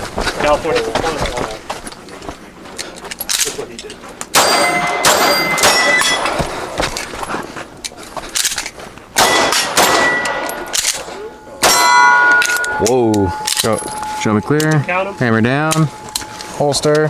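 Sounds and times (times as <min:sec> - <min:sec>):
pistol shots: 0:04.3 - 0:06.4, 0:09.2 - 0:13.7
steel plates ringing: 0:04.4 - 0:06.8, 0:09.2 - 0:17.0.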